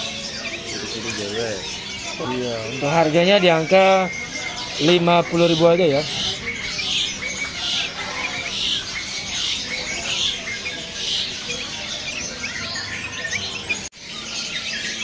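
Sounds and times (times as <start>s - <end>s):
repeated bird call: 0.0s - 15.0s
songbirds chirping and calling: 0.0s - 15.0s.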